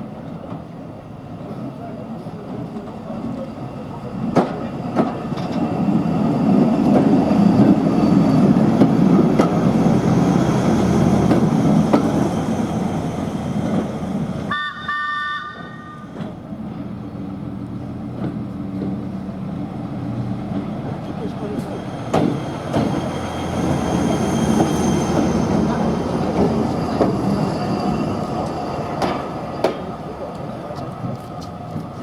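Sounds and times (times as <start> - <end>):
train rumbling past: 0.0 - 32.0
train warning horn blast: 14.5 - 16.1.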